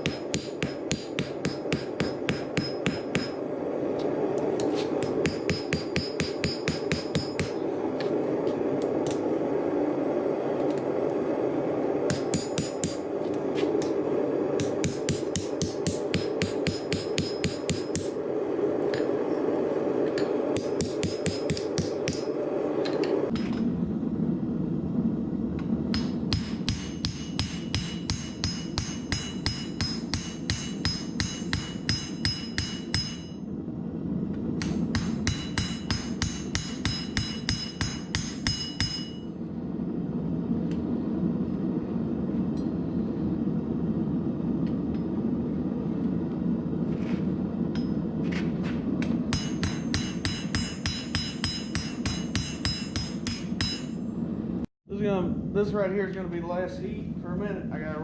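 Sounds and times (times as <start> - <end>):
hammer ringing on steel anvil: 0.0 - 3.4, 5.0 - 7.6, 14.6 - 18.2, 25.9 - 33.4, 35.0 - 39.3, 49.3 - 54.0.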